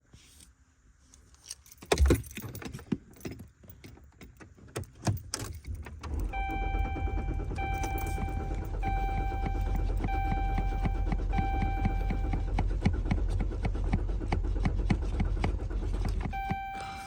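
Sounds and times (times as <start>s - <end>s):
car keys jangling: 1.4s - 12.5s
car starter cranking engine: 5.0s - 17.0s.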